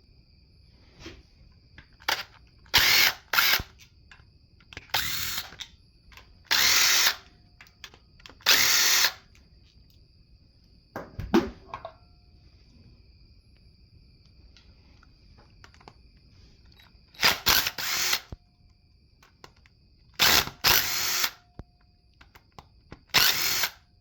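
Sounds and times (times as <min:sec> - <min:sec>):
hand-held power tool bursts: 0:02.0 - 0:03.9, 0:04.7 - 0:09.2, 0:17.1 - 0:18.4, 0:20.2 - 0:21.4, 0:23.1 - 0:23.8.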